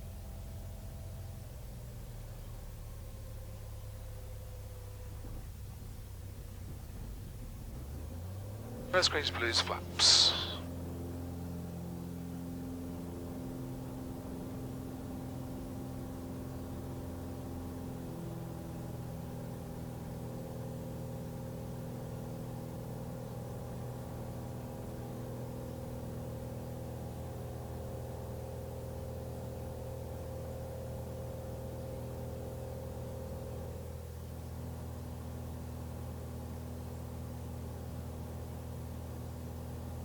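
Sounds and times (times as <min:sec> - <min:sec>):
airplane engine and propeller droning: 0:08.6 - 0:18.0.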